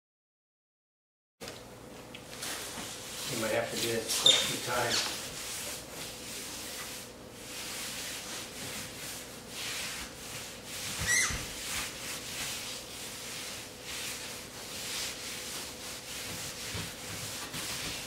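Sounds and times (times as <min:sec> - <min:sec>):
hand rubbing on ceramic tile: 0:02.4 - 0:18.0
short rising squeak: 0:04.2 - 0:04.5, 0:11.0 - 0:11.4.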